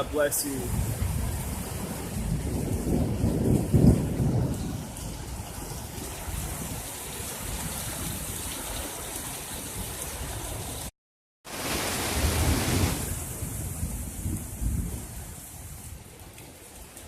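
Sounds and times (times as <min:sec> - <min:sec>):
rain falling: 0:00.1 - 0:10.9, 0:11.5 - 0:17.0
low rumble of thunder: 0:00.7 - 0:08.6, 0:12.2 - 0:17.0.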